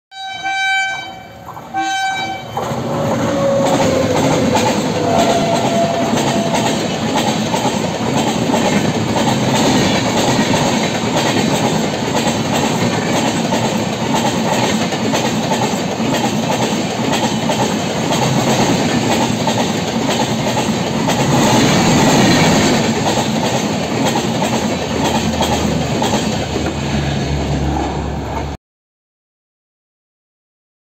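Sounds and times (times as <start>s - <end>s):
train horn blasts: 0.1s - 7.0s
train wheels rushing and clattering: 2.5s - 28.6s.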